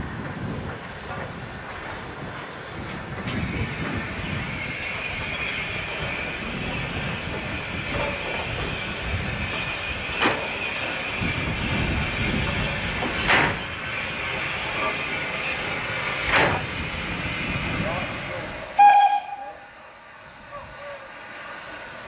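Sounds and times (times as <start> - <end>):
steam train rumble and hiss: 0.0 - 22.0
wheels clicking over rail joints: 0.1 - 19.4.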